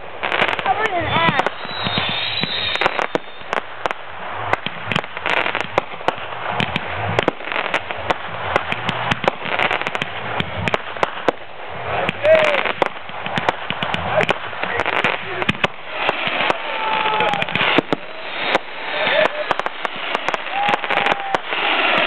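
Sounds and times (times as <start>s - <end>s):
continuous noisy haze: 0.0s - 22.0s
fireworks bangs and crackles: 0.0s - 22.0s.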